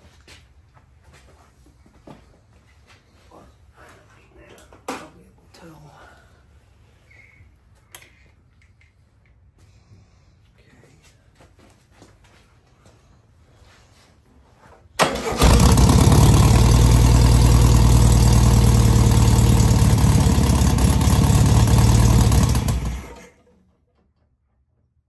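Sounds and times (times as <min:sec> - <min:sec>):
car engine starting and running: 0:15.0 - 0:24.0.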